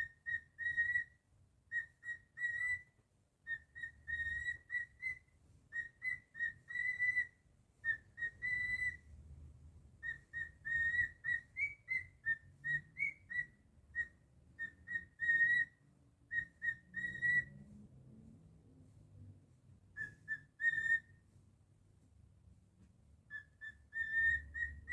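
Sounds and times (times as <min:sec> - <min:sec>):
cockatiel whistling: 0:00.0 - 0:09.1, 0:10.0 - 0:17.6, 0:19.9 - 0:21.2, 0:23.3 - 0:24.9.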